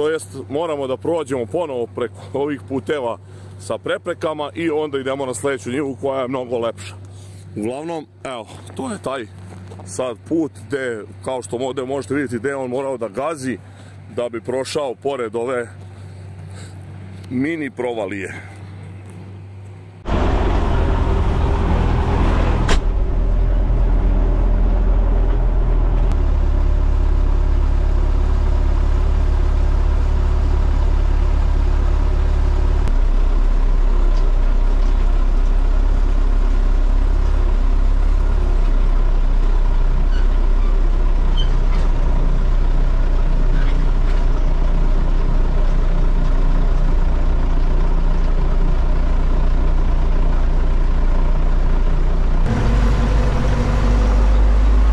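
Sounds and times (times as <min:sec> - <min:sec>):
diesel engine droning: 0:00.0 - 0:54.9
sharp knock: 0:20.1 - 0:23.1.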